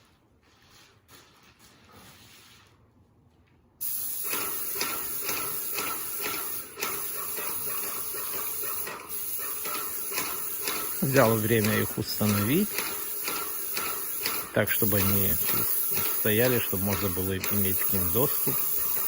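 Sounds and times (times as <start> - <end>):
paint sprayer hissing: 3.8 - 19.0.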